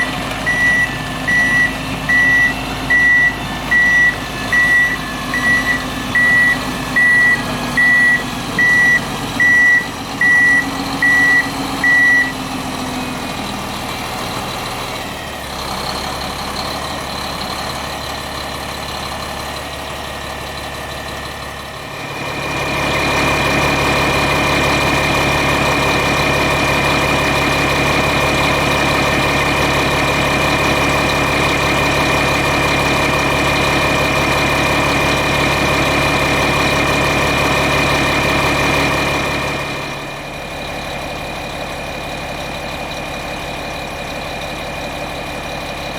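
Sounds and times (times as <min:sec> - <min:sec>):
high engine whine: 0:00.0 - 0:13.8, 0:19.1 - 0:40.4
diesel engine running: 0:00.0 - 0:45.9
reversing alarm beeping: 0:00.4 - 0:12.5.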